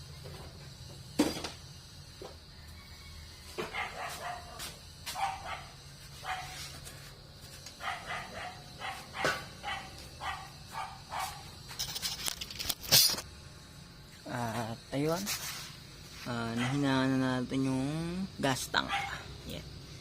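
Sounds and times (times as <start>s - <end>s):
dog barking: 3.7s - 6.6s, 7.8s - 11.5s, 16.5s - 16.9s, 18.8s - 19.3s.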